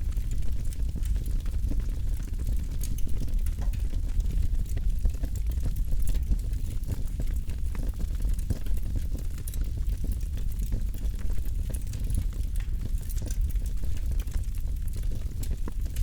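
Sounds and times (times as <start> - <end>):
low fire rumble: 0.0 - 16.0.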